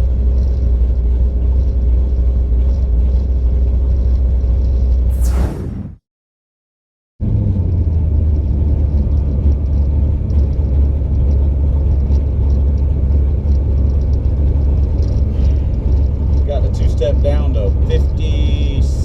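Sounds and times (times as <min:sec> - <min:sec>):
car engine low rumble: 0:00.0 - 0:05.8, 0:07.2 - 0:19.0.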